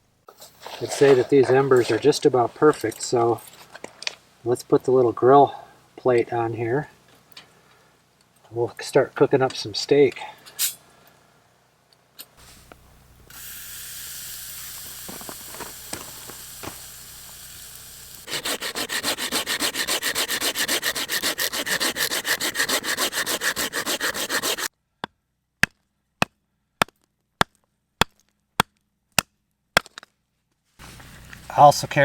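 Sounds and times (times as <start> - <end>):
steak sizzling on a grill: 12.4 - 19.4
rhythmic rasping: 15.5 - 24.7.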